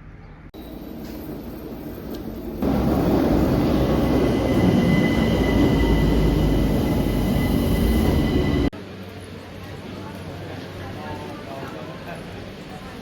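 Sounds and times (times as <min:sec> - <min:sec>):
high-pitched whine: 0:00.6 - 0:08.7
train rumbling on rails: 0:00.6 - 0:08.8.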